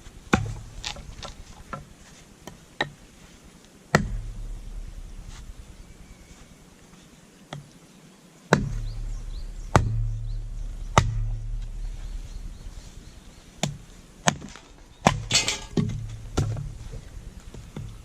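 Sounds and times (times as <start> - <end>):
low hum: 0.0 - 1.8, 3.9 - 6.9, 8.6 - 18.0
axe chopping firewood: 0.3 - 1.9, 3.9 - 4.8, 8.5 - 11.8, 13.6 - 16.8
wood cracking: 0.3 - 1.9, 13.6 - 18.0.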